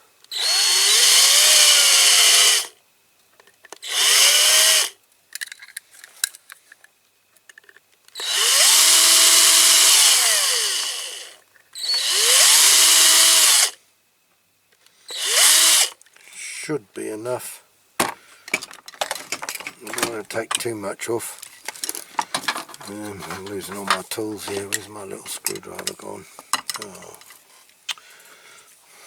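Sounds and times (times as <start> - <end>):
small electric drill whining: 0.3 - 2.8, 3.8 - 5.0, 8.2 - 13.8, 15.1 - 16.0
small clicks and scrapes: 5.4 - 8.2, 18.5 - 20.7, 21.3 - 28.0.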